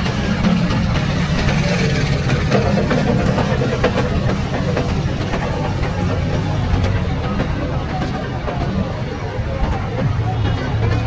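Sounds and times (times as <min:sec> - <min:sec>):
vehicle engine running close by: 0:00.0 - 0:08.4.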